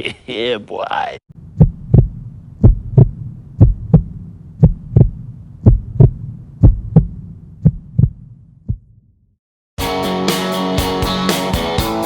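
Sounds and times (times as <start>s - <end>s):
heartbeat thumps: 1.4s - 9.1s.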